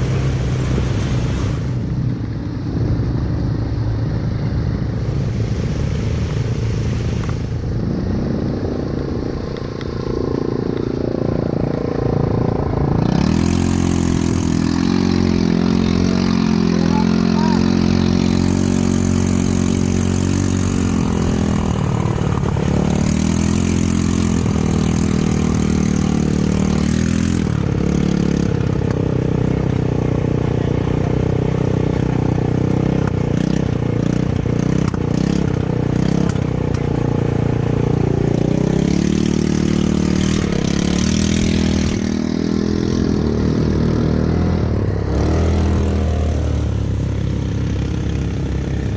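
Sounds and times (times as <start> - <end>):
atv engine running: 0.0 - 48.9.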